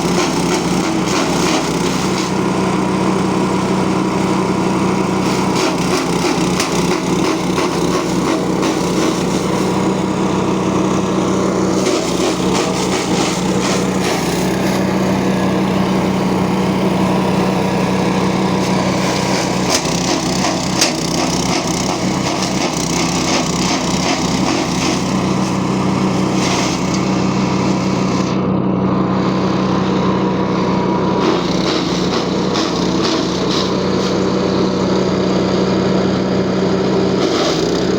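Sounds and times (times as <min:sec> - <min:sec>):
petrol engine running steadily: 0:00.0 - 0:37.9
fodder crackling as it is chopped: 0:00.2 - 0:02.3, 0:05.2 - 0:09.7, 0:11.7 - 0:14.3, 0:18.6 - 0:25.6, 0:26.4 - 0:27.1, 0:31.2 - 0:34.2, 0:37.2 - 0:37.7.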